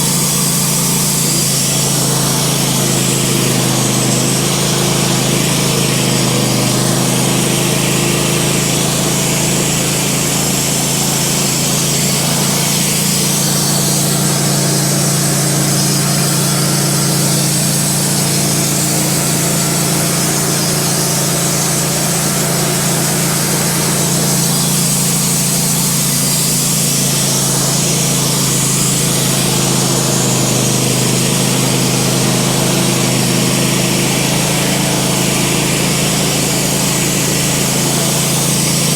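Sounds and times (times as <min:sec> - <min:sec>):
band sawmill cutting log: 0:00.0 - 0:38.9.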